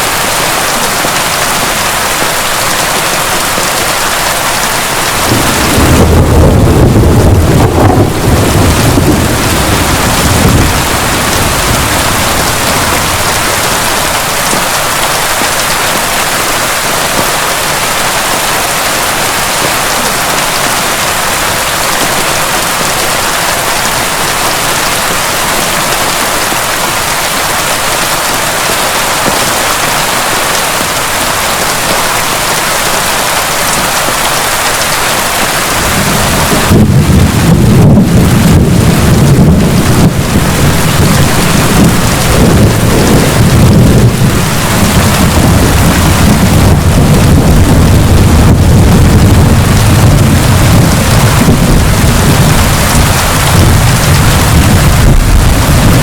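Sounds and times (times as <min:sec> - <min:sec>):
heavy rain falling: 0:00.0 - 0:56.0
thunder rumbling: 0:02.8 - 0:29.9, 0:35.5 - 0:56.0.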